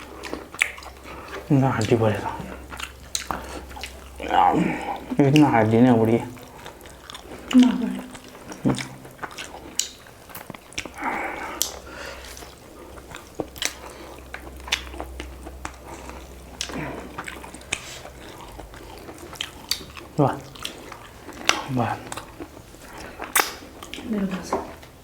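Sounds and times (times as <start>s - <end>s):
mouth clicks and smacks: 0.0s - 1.4s, 2.6s - 4.3s, 6.5s - 11.8s, 16.6s - 24.0s
chewing food: 0.0s - 25.0s.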